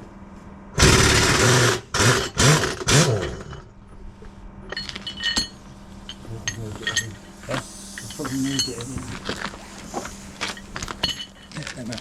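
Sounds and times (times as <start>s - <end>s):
impact wrench whirring: 0.8s - 3.6s
metallic clinks: 4.7s - 9.0s, 10.4s - 12.0s.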